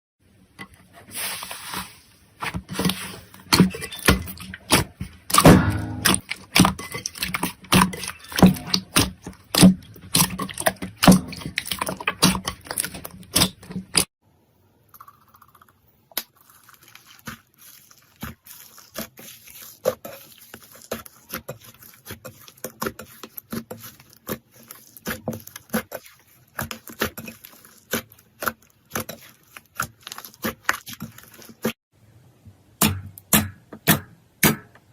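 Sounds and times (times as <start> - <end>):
slime crackling and popping: 16.1 - 31.7.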